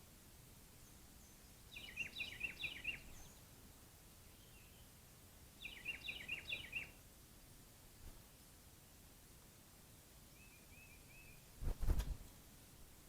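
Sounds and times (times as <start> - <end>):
songbird singing: 0.6 - 7.0, 10.2 - 11.6.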